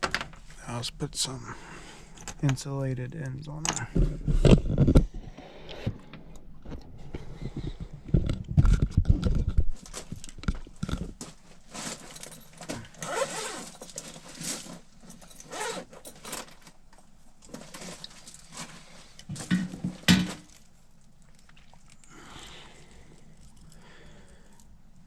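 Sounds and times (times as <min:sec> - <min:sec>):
metal parts rustling and clinking: 0:08.4 - 0:21.0.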